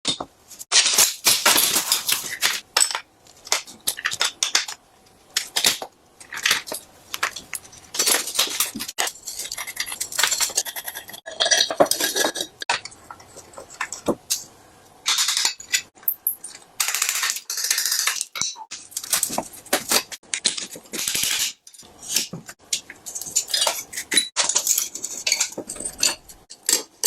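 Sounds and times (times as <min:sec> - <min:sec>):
metal tools clinking: 0:20.4 - 0:27.0.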